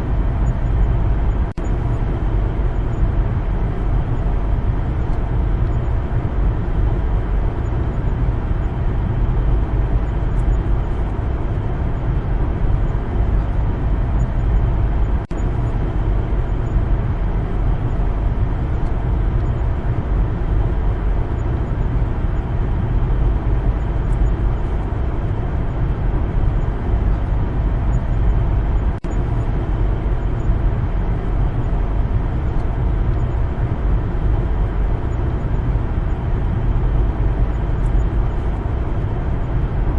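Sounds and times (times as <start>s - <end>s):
car tyre and engine rumble: 0.0s - 39.9s.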